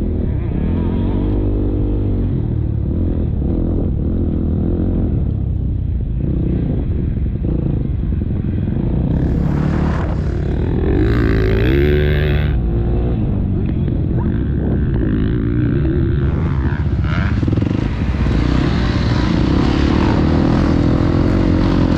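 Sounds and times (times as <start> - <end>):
motocross bike engine revving: 8.6 - 21.9
loud rushing noise: 9.0 - 12.6, 15.0 - 21.9.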